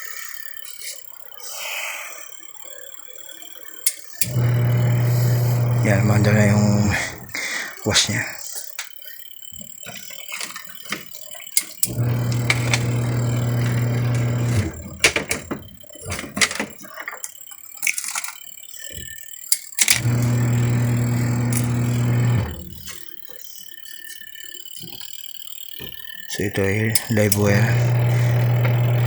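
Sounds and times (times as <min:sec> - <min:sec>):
washing machine motor humming: 0:04.2 - 0:17.8, 0:19.8 - 0:23.8, 0:25.8 - 0:29.0
clicks and rattles: 0:09.6 - 0:23.1.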